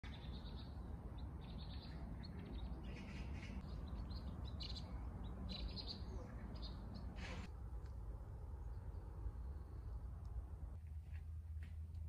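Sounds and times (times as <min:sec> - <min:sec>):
small birds chirping: 0:00.0 - 0:07.5
low steady rumble: 0:00.1 - 0:12.0.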